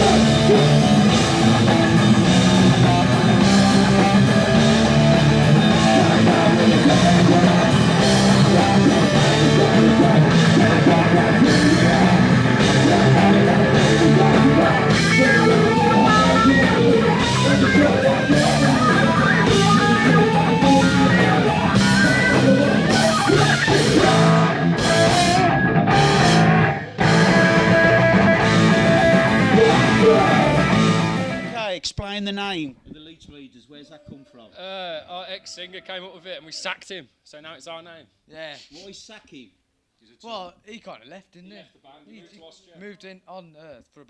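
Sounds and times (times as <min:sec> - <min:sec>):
punk rock band playing: 0:00.0 - 0:31.6.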